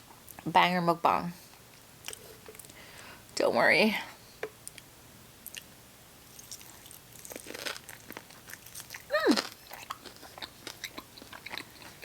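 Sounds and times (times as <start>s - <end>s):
chewing with wet mouth clicks: 4.6s - 5.7s, 6.4s - 12.0s.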